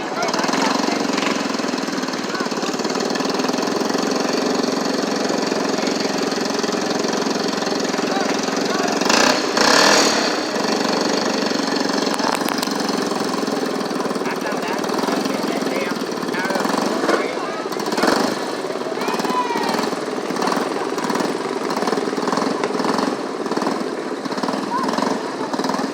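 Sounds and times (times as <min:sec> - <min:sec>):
engine running steadily: 0:00.0 - 0:25.9.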